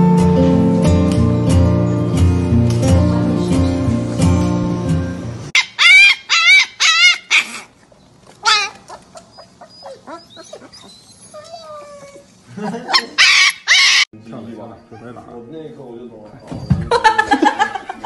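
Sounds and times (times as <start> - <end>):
puppies whining and yowling: 5.5 - 14.1, 14.8 - 15.5, 16.3 - 16.9
puppies whimpering and yipping: 5.6 - 14.1, 14.8 - 15.5.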